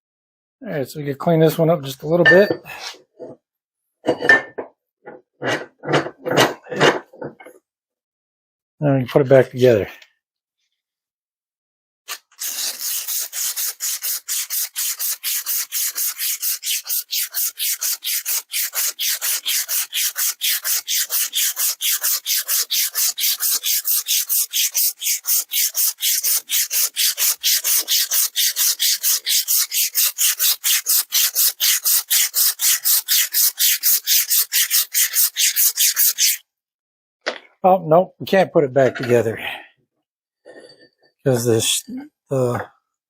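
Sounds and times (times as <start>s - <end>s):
emery cloth rubbing rusty steel: 12.4s - 36.4s.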